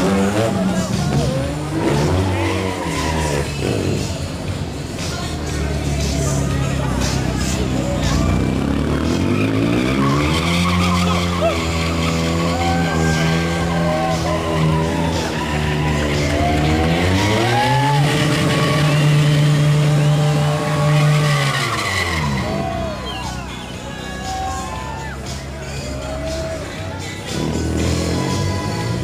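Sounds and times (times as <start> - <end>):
tyre squeal: 9.2 - 19.4, 20.8 - 23.8.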